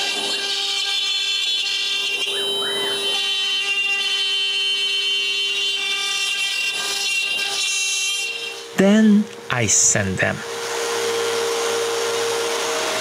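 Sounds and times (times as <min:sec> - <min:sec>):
machine motors whining: 0:08.2 - 0:13.0.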